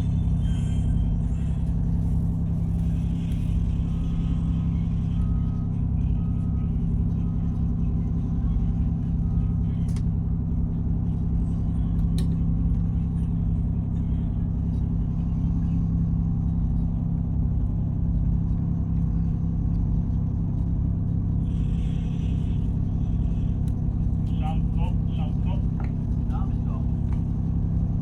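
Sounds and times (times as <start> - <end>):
ship diesel engine droning: 0.0 - 28.0.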